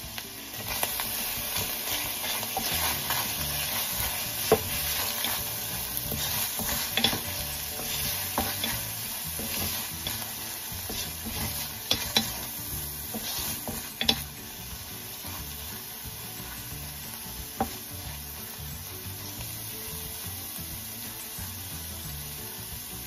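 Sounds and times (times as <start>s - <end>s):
meat and peas sizzling in pan: 0.0s - 23.0s
wooden spatula scraping pan: 1.5s - 14.3s
spatula knocking against pan: 4.4s - 4.8s.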